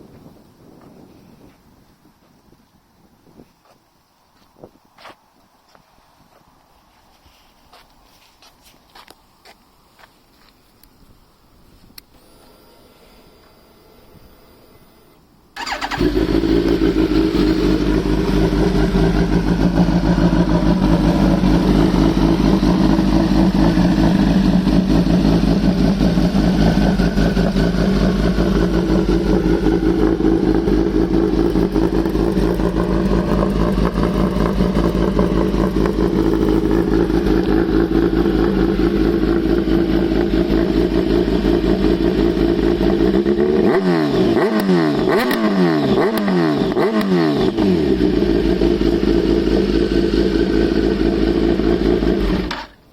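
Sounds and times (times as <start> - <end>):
motorcycle engine idling: 13.9 - 52.9
motorcycle engine revving: 15.6 - 52.8.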